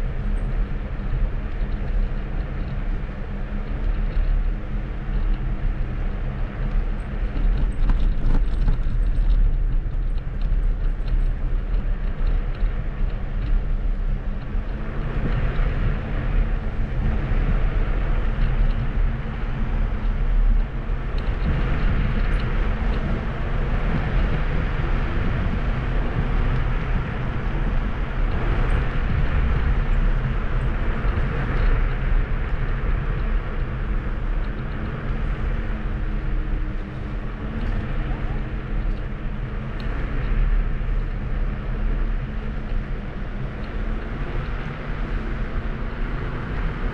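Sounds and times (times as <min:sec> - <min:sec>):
wind and tyre rumble: 0:00.0 - 0:46.9.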